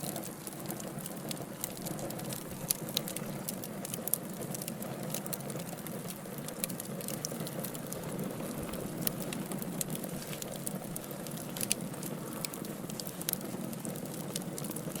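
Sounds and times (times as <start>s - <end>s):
wood logs burning and crackling: 0.0s - 15.0s.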